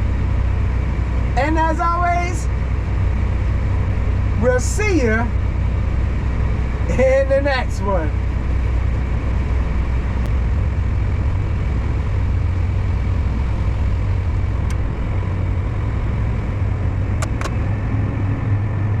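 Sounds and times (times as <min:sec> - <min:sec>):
farm machine engine droning: 0:00.0 - 0:19.0
light clicks: 0:17.2 - 0:17.6.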